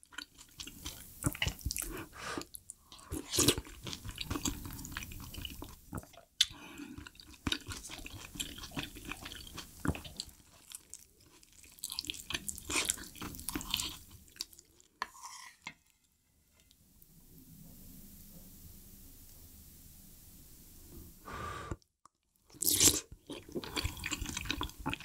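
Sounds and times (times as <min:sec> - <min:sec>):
chewing and wet mouth sounds: 0:00.0 - 0:15.0, 0:22.5 - 0:25.0
wooden spoon scraping metal pot: 0:15.0 - 0:15.8.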